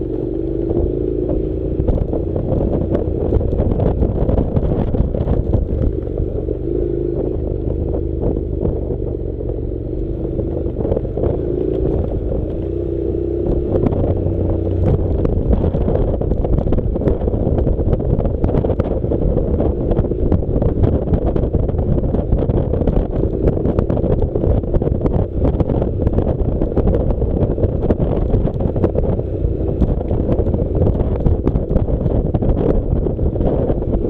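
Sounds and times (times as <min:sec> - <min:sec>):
motorcycle engine running: 0:00.0 - 0:34.0
wind buffeting microphone: 0:00.0 - 0:34.0.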